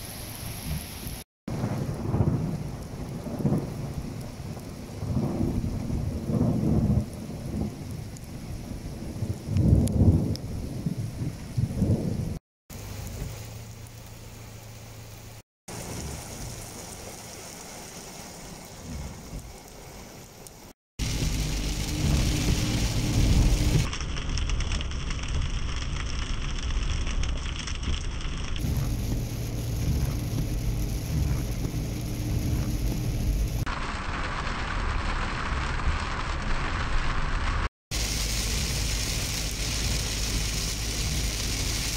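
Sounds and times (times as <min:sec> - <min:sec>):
heavy rain: 0:00.0 - 0:41.9
rain hissing on windscreen: 0:00.0 - 0:41.9
thunder rumble: 0:00.6 - 0:13.8, 0:21.0 - 0:41.9
car road and engine noise: 0:12.7 - 0:41.9.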